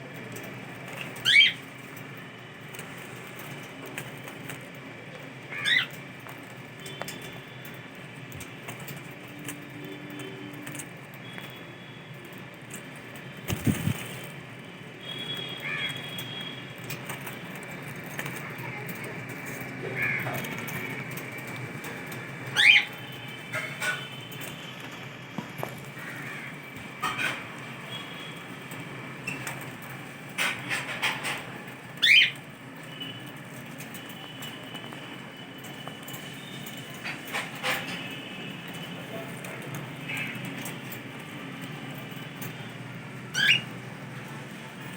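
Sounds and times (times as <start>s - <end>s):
cockatiel calling: 1.2s - 1.6s, 5.5s - 5.9s, 22.5s - 22.9s, 32.0s - 32.4s, 43.3s - 43.7s.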